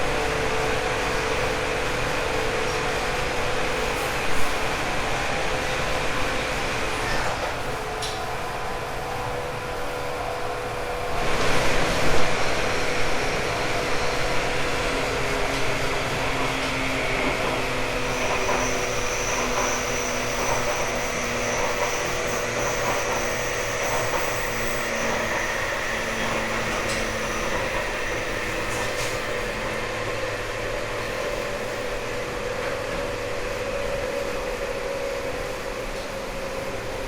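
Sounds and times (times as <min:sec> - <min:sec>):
train traction motor hum: 0:00.0 - 0:37.0
wheel and rail noise: 0:00.7 - 0:37.0
faint high whine: 0:17.8 - 0:29.6.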